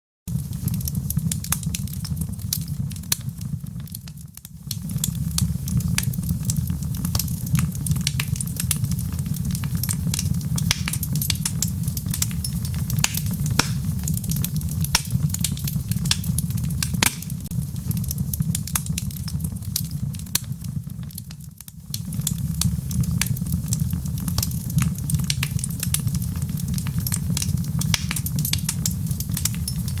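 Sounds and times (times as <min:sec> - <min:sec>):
wood fire crackling and popping: 0:00.3 - 0:30.0
rain hissing: 0:10.8 - 0:15.2.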